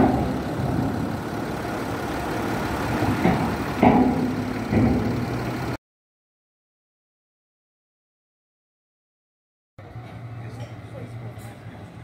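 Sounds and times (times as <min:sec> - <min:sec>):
engines idling: 0:00.0 - 0:05.8, 0:09.8 - 0:12.0.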